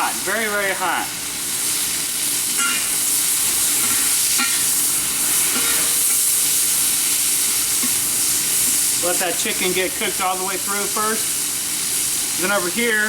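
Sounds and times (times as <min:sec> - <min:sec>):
chicken sizzling in a wok: 0:00.0 - 0:13.0
spatula striking a pan: 0:02.6 - 0:02.9, 0:03.8 - 0:04.7, 0:05.5 - 0:06.2, 0:07.7 - 0:08.8.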